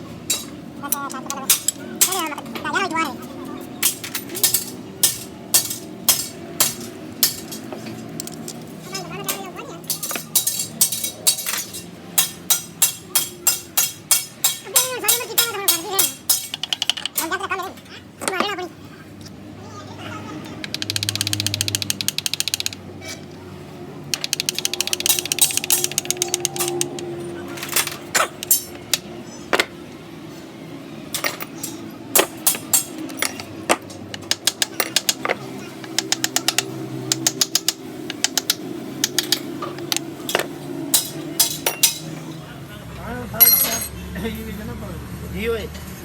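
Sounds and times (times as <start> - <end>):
ratchet wrench clicking: 20.6 - 22.8, 24.1 - 27.1, 31.2 - 42.1.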